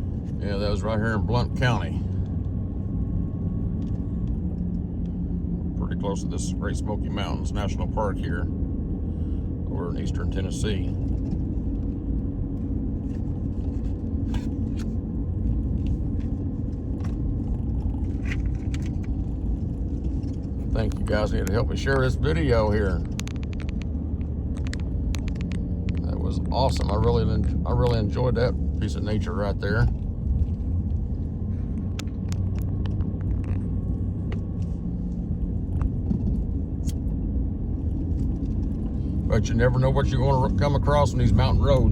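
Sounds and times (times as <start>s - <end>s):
car engine and road rumble: 0.0s - 41.9s
light clicks and rattles: 16.9s - 28.4s.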